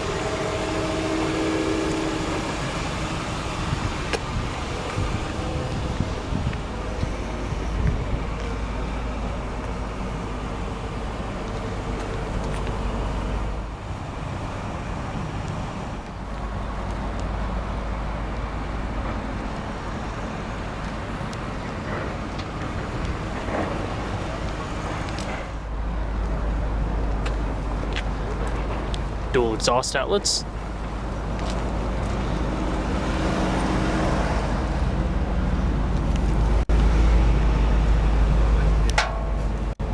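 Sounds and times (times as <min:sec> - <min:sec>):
car engine idling: 0:00.0 - 0:21.4.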